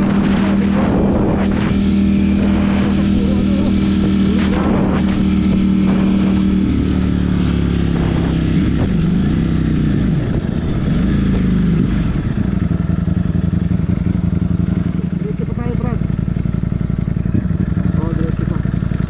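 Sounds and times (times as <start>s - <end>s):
wind rushing over microphone: 0.0s - 12.9s
motorcycle engine running: 0.0s - 19.0s.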